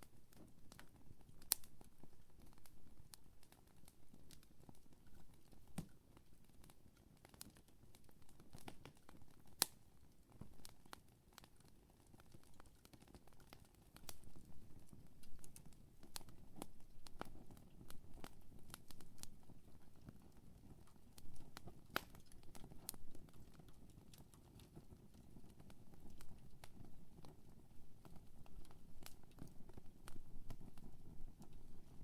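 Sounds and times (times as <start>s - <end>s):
burning wood crackling and popping: 0.1s - 32.0s
low rumble of flames: 21.2s - 32.0s.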